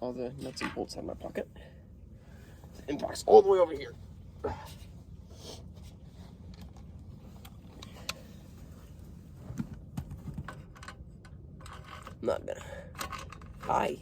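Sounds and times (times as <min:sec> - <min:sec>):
low background rumble: 0:00.0 - 0:14.0
metal parts and tools clicking: 0:12.9 - 0:14.0.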